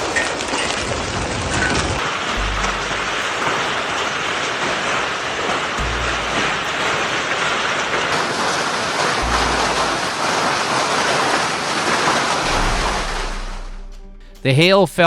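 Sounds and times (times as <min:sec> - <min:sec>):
heavy rain pouring: 0:00.0 - 0:13.7.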